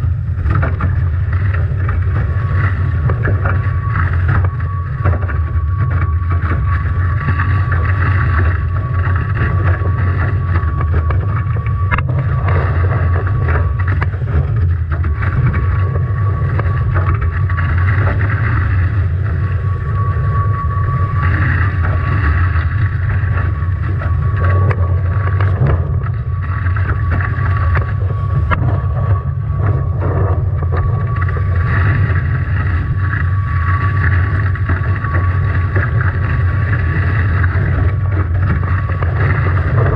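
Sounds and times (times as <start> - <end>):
strong wind buffeting microphone: 0.0 - 39.9
water rushing past hull: 0.0 - 39.9
thin steady whistle: 19.4 - 23.8.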